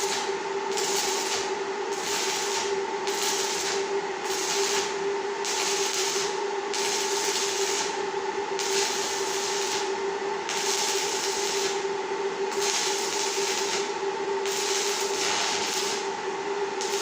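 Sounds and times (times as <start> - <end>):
machine hum: 0.0 - 17.0
pulsing machine hiss: 12.5 - 16.1.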